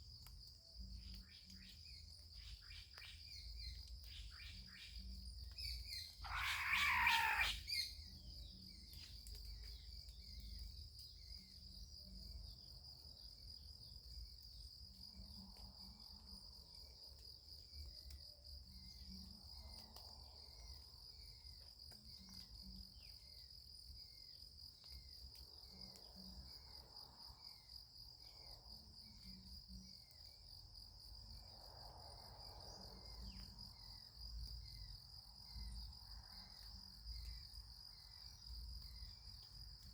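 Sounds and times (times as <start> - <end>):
high insect trilling: 5.6 - 8.0
bird call falling in pitch: 6.2 - 7.8.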